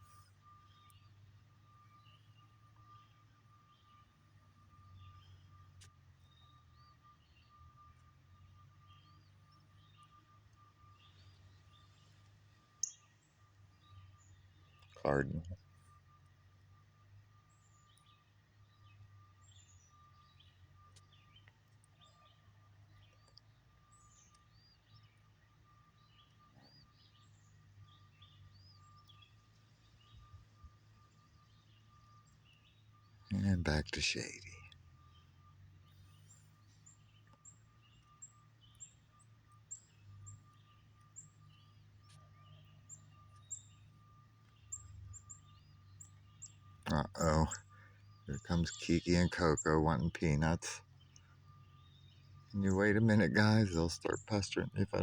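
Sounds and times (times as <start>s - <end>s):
faint songbird chirps: 0.0s - 55.0s
steady low hum: 0.0s - 55.0s
soft bird notes: 17.5s - 55.0s.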